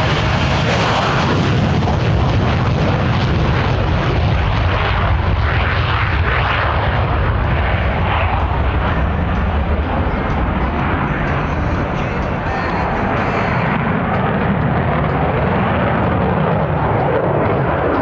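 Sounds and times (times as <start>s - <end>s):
jet engine roaring: 0.0s - 18.0s.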